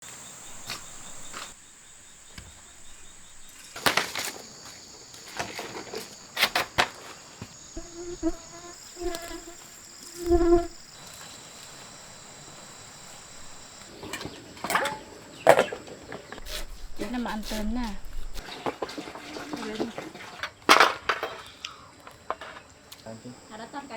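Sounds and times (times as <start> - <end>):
high-pitched insect drone: 0.1 - 6.4, 7.5 - 13.9.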